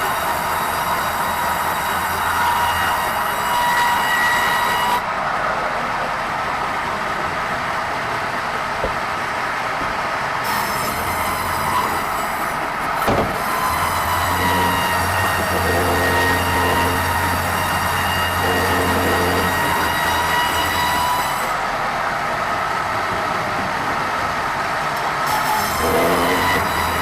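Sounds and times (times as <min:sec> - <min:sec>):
band saw cutting timber: 0:00.0 - 0:05.0, 0:10.4 - 0:21.6, 0:25.2 - 0:27.0
short knock: 0:13.1 - 0:13.4.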